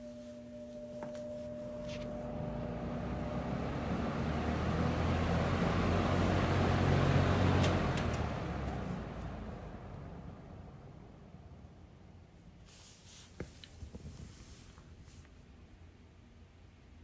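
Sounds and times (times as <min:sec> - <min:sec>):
fan motor hum: 0:00.0 - 0:16.6
fan blades whooshing air: 0:01.7 - 0:10.8.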